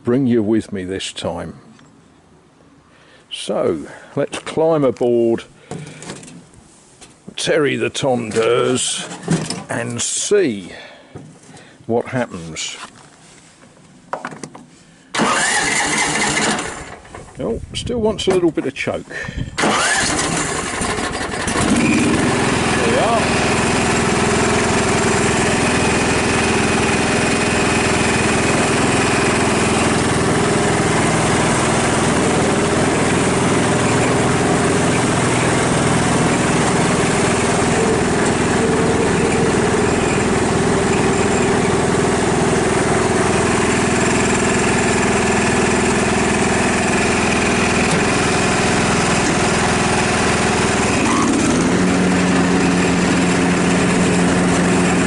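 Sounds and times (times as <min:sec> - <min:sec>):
ride-on lawnmower engine: 0:15.1 - 0:17.4, 0:19.6 - 0:55.0.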